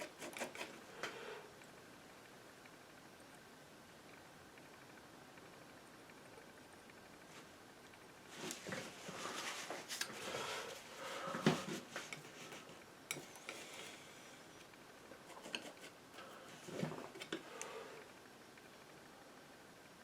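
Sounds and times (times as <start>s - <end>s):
painting knife scraping paint: 0.0s - 0.8s, 15.2s - 17.7s
rustling strokes: 8.3s - 12.8s.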